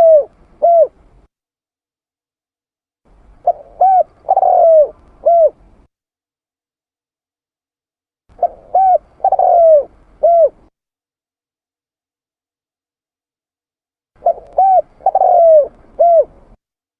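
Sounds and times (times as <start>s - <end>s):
dove cooing: 0.0s - 1.1s, 3.4s - 5.7s, 8.3s - 10.7s, 14.2s - 16.6s.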